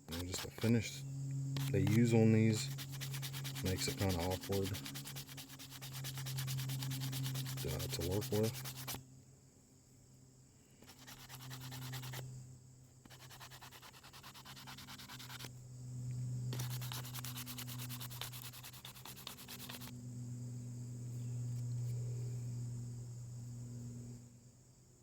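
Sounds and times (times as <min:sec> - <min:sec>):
steady low hum: 0:00.0 - 0:25.0
sandpaper rubbing wood: 0:00.1 - 0:00.8, 0:01.6 - 0:09.0, 0:10.8 - 0:12.2, 0:13.0 - 0:15.5, 0:16.5 - 0:19.9.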